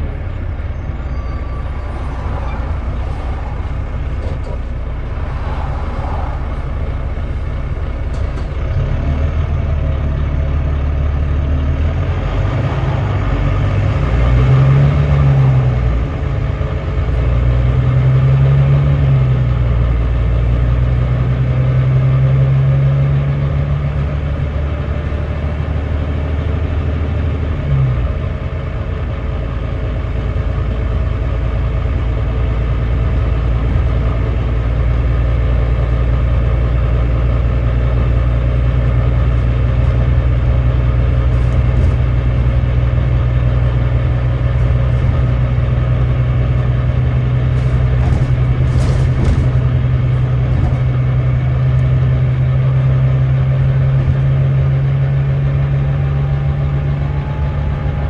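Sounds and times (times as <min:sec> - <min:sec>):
bus diesel engine under load: 0:00.0 - 0:58.0.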